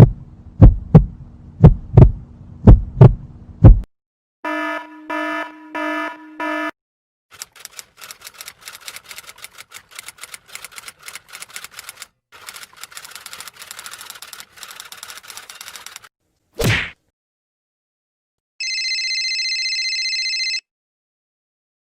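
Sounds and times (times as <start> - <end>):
typewriter keys clacking: 7.3 - 16.1.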